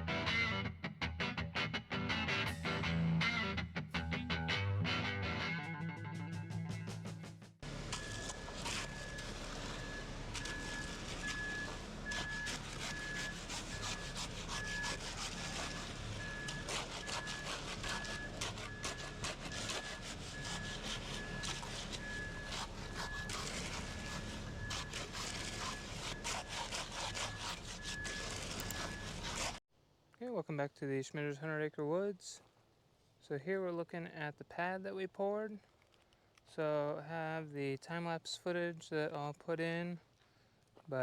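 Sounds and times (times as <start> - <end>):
diesel engine running: 7.6 - 29.6
tools scraping concrete: 7.9 - 29.6
backup alarm beeping: 8.0 - 13.4.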